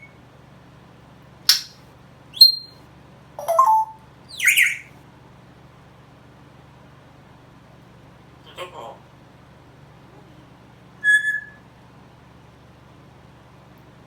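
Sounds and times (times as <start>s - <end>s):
parrot whistles and squawks: 1.5s - 1.8s, 2.4s - 2.8s, 3.4s - 4.9s, 11.0s - 11.7s.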